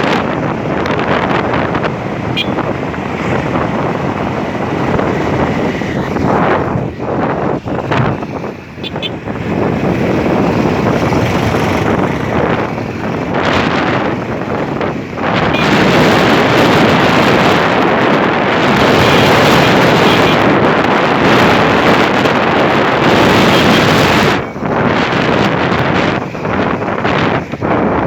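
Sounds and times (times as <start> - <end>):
traffic and road noise: 0.0 - 28.0
wind buffeting microphone: 0.0 - 28.0.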